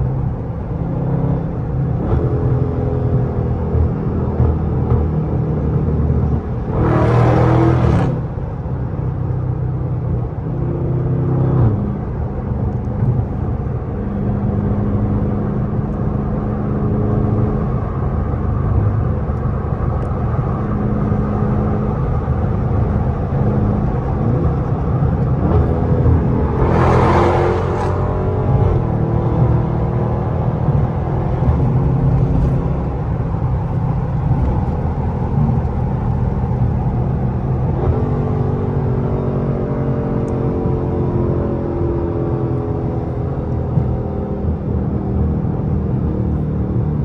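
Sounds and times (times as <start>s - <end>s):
engine droning under way: 10.3s - 47.0s.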